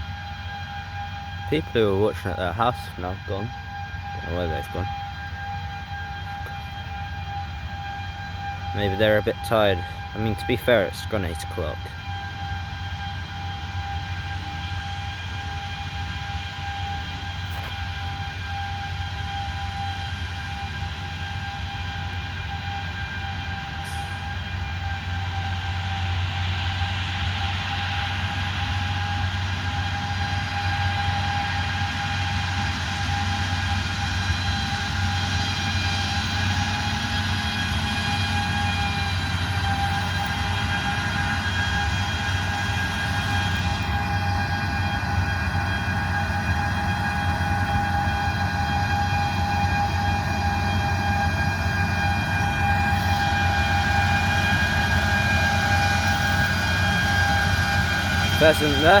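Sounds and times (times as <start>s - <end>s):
high mechanical whine: 0.0s - 59.0s
farm machinery engine running: 26.0s - 59.0s.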